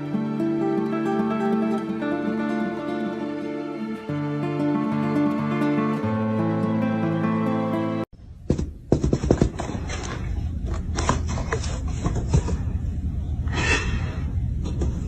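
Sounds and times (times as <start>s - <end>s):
plucked guitar music: 0.0s - 8.1s
steady low hum: 8.2s - 15.0s.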